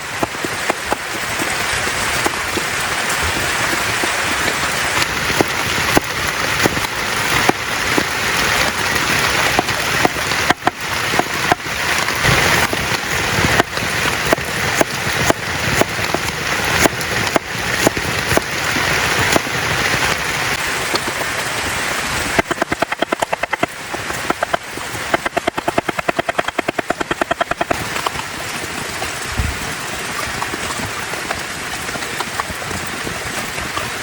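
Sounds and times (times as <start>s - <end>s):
heavy rain: 0.0s - 34.0s
knife chopping on cutting board: 22.4s - 27.8s.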